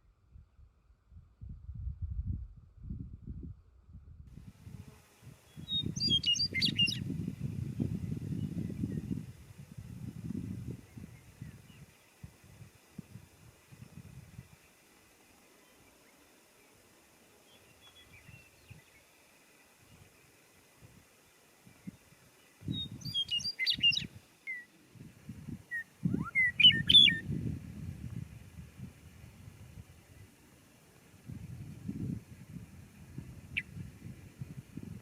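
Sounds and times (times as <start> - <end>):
wind buffeting microphone: 0.3 - 14.6, 21.6 - 24.2, 24.9 - 30.5, 31.1 - 35.0
songbird warbling: 5.5 - 7.0, 22.7 - 24.7, 25.7 - 27.3, 33.4 - 33.8
faint bird chirps: 5.5 - 7.1, 15.5 - 20.4, 21.2 - 24.8, 25.7 - 27.2, 33.5 - 33.8.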